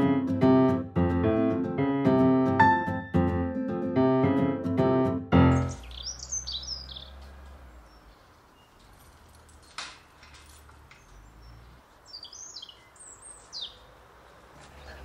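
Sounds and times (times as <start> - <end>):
songbird singing high chirps: 5.4 - 8.8, 11.0 - 14.0.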